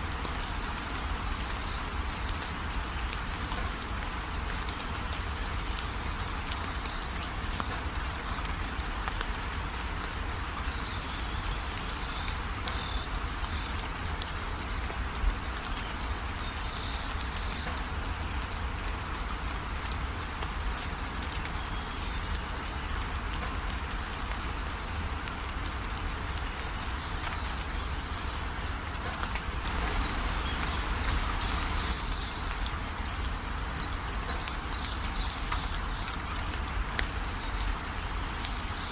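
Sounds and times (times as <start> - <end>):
steady rain falling: 0.0 - 38.9
birds chirping: 26.5 - 36.3.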